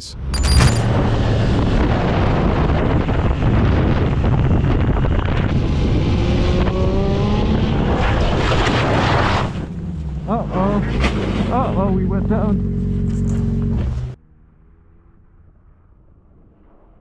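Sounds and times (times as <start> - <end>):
motorcycle engine accelerating: 0.2 - 17.0
wind rush on microphone: 0.8 - 10.2.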